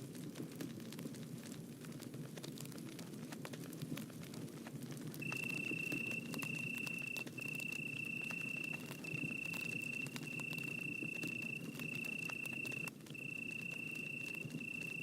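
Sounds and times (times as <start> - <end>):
campfire crackling and popping: 0.0 - 15.0
high-pitched insect trill: 5.2 - 15.0.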